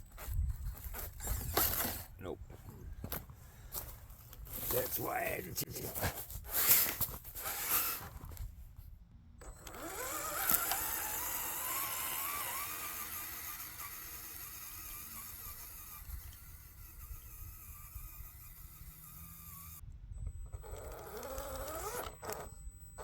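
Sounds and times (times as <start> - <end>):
scraping and crunching: 0.1 - 8.6
electric motor whining: 9.4 - 23.0.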